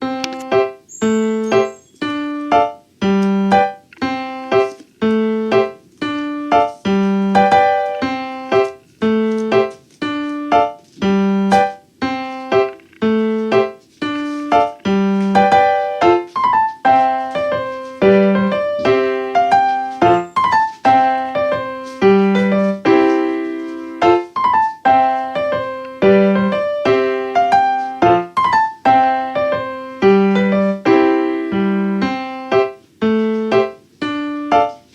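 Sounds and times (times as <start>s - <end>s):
calm piano music: 0.0s - 34.9s.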